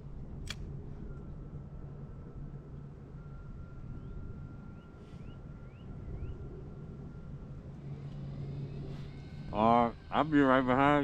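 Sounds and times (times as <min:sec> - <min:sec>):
wind rumble on microphone: 0:00.0 - 0:11.0
high whine: 0:03.4 - 0:11.0
electric trolling motor humming: 0:06.5 - 0:11.0.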